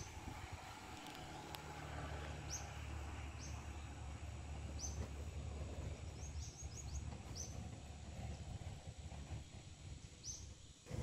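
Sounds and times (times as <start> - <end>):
small bird chirping: 1.0 - 5.1, 5.8 - 7.7, 10.2 - 10.8.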